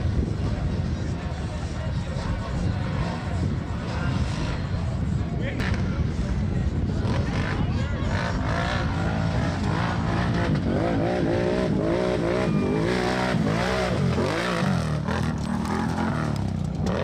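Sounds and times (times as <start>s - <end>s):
atv engines revving: 0.0s - 17.0s.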